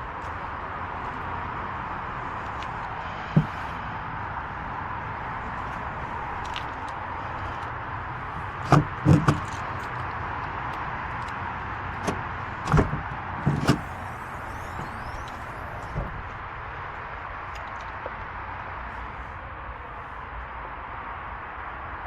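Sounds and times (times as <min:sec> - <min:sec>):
loud clunks of vehicle doors: 0:03.2 - 0:03.8, 0:08.4 - 0:09.6, 0:12.0 - 0:16.4.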